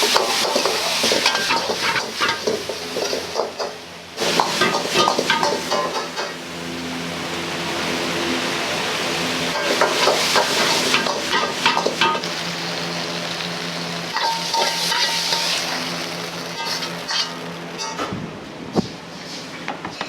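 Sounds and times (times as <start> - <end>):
food sizzling in a wok: 0.0 - 18.0
metal ladle scraping wok: 14.1 - 18.0.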